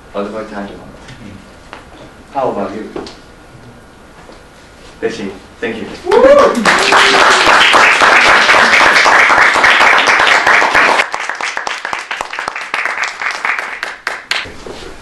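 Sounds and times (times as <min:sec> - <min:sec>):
audience applauding: 0:06.1 - 0:14.5.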